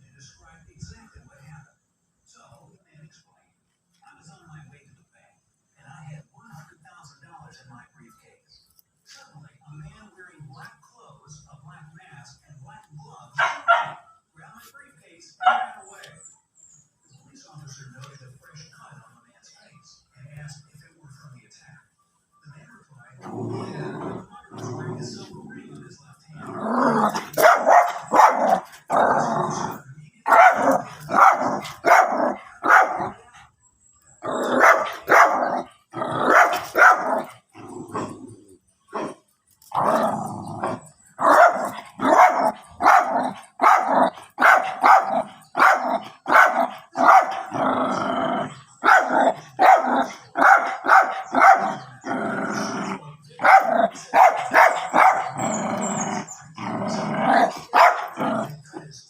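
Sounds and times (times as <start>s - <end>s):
small dogs barking: 13.3s - 14.2s, 15.4s - 16.3s, 26.4s - 33.5s, 34.2s - 58.8s.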